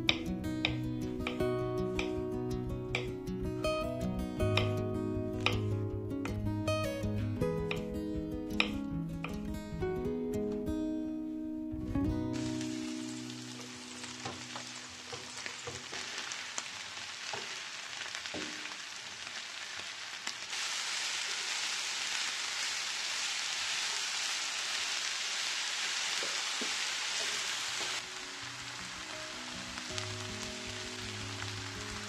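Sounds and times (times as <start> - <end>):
vegetables sizzling in frying pan: 12.3 - 32.0.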